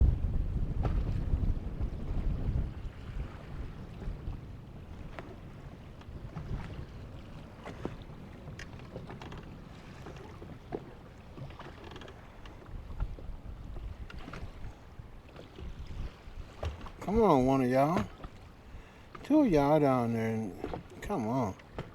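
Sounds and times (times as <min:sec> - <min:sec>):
wind rumble on microphone: 0:00.0 - 0:11.6, 0:12.2 - 0:19.4
light clicks and knocks: 0:08.5 - 0:13.2.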